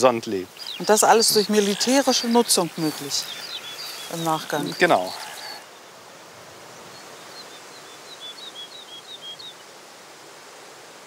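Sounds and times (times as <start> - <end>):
outdoor background hiss: 0.0 - 11.0
small bird chirping: 0.4 - 5.8.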